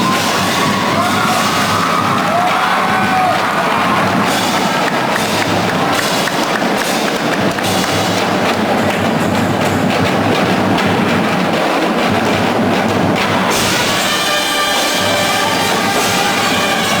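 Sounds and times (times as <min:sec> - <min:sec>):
drums and percussion: 0:00.0 - 0:17.0
marching band playing: 0:00.0 - 0:17.0.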